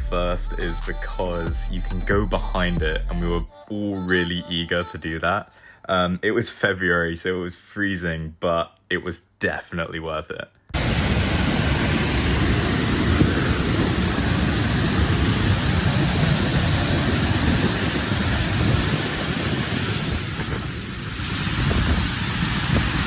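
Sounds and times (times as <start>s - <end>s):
waterfall rushing: 10.8s - 23.0s.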